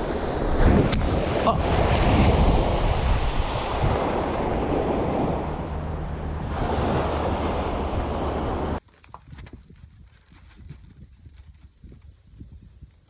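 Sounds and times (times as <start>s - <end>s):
ocean surf washing on beach: 0.0s - 8.8s
wind buffeting microphone: 0.0s - 13.0s.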